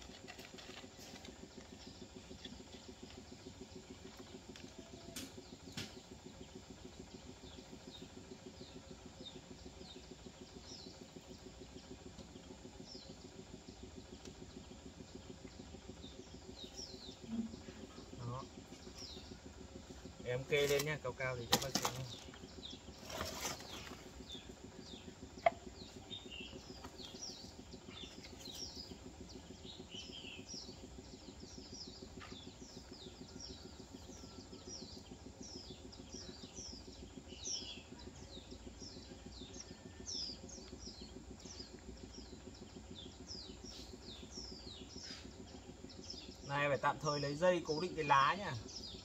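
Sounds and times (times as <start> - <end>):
faint low hum: 0.0 - 49.0
small birds chirping: 0.0 - 49.0.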